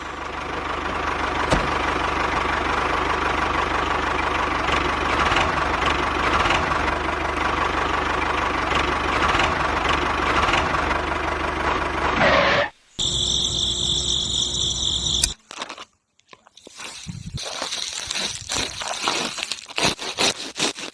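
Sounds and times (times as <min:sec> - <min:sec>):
motor-driven machine rattling: 0:03.9 - 0:07.0, 0:08.6 - 0:12.2
high-pitched machine whine: 0:12.2 - 0:15.4.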